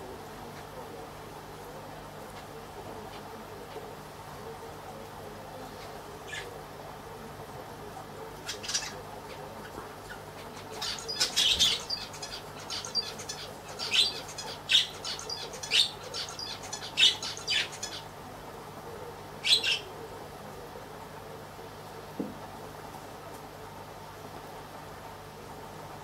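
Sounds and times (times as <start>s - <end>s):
steady low hum: 0.0s - 26.0s
birds chirping and squawking: 5.7s - 6.6s, 8.4s - 18.2s, 19.4s - 19.9s.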